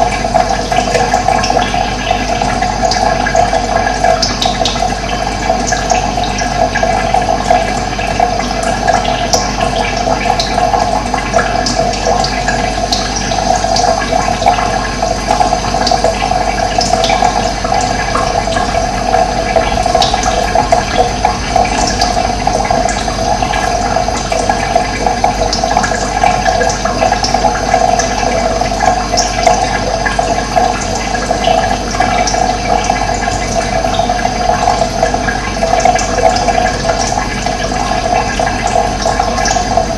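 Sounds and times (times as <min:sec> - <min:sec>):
water rushing: 0:16.1 - 0:27.6, 0:29.0 - 0:39.9.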